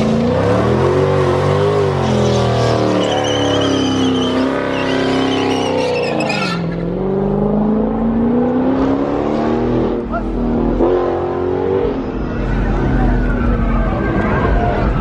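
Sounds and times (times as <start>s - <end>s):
car engine revving hard: 0.0s - 12.0s
tyres squealing: 2.0s - 6.8s.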